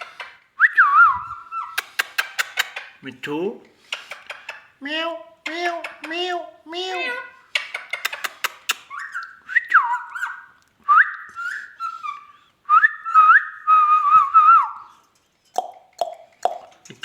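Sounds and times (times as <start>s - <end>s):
parakeet whistling: 0.0s - 2.9s, 7.1s - 14.9s
parakeet sharp clicks: 1.8s - 3.0s, 7.6s - 9.0s, 15.6s - 16.7s.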